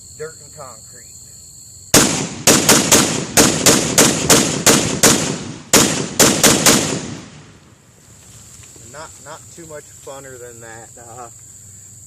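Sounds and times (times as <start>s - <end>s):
pistol firing rapid shots: 2.0s - 7.5s.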